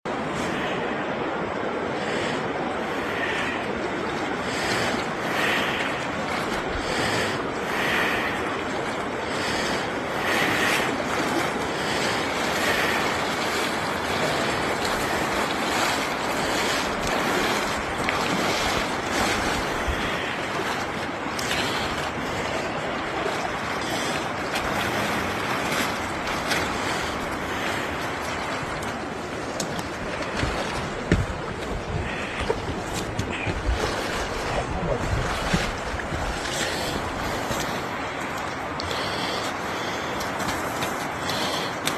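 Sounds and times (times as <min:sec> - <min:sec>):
water rushing: 0:00.0 - 0:41.9
wind noise on microphone: 0:29.8 - 0:38.1.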